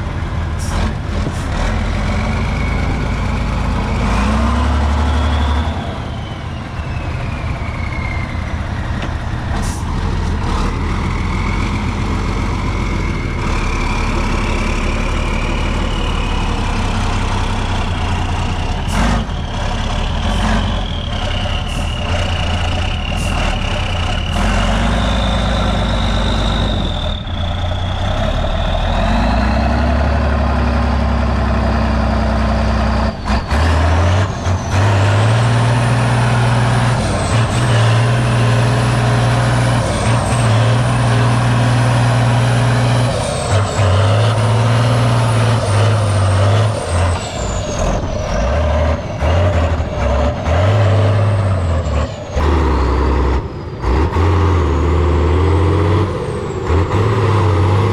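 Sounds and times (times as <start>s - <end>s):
truck engine working hard: 0.0s - 57.9s.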